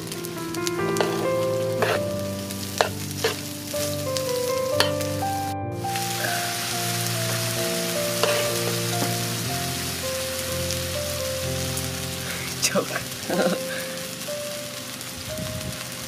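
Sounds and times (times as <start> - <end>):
background music with held notes: 0.0 - 16.0
sausage sizzling in pan: 0.0 - 16.0
metal spoon scraping pan: 0.9 - 2.1, 2.8 - 3.4, 8.2 - 8.5.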